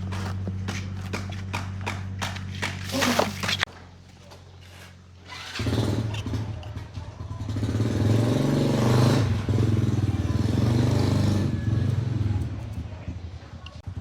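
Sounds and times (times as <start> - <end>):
engine starting and running: 4.8 - 12.8.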